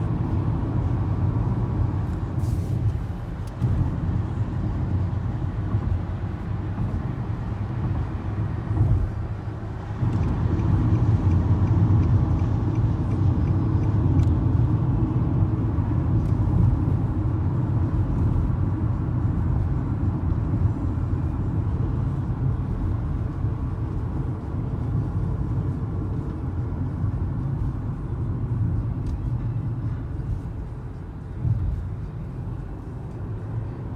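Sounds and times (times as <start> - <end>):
car engine and road noise: 0.0 - 33.9.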